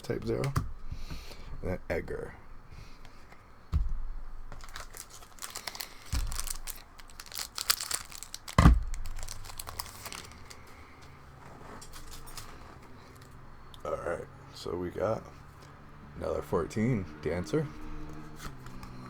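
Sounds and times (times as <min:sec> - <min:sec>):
dull thumps: 0:03.3 - 0:04.8
wrapper crinkling and tearing: 0:04.5 - 0:10.8, 0:11.8 - 0:13.4.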